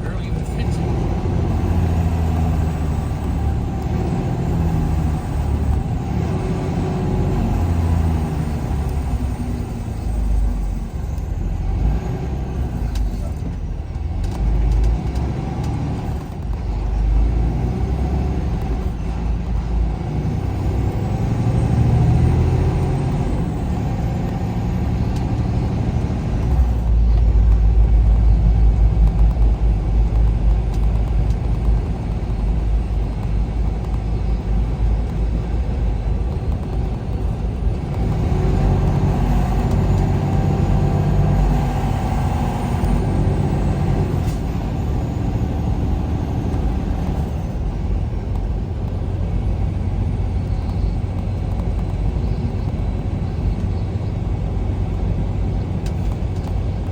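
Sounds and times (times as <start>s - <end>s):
semi truck engine and tyres rumbling: 0.0s - 56.9s.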